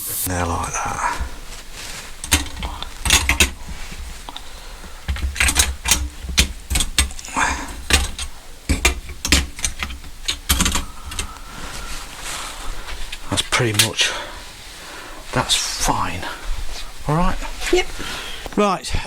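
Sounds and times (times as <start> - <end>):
metal parts clicking and clinking: 1.0 - 11.4, 12.8 - 14.1.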